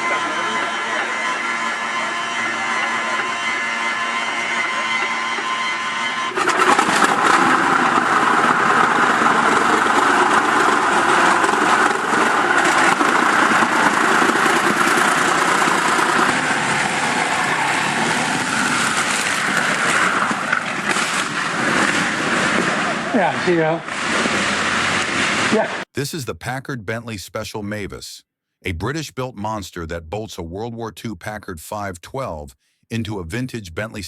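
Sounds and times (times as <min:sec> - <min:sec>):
aircraft engine running roughly: 0:00.0 - 0:23.1.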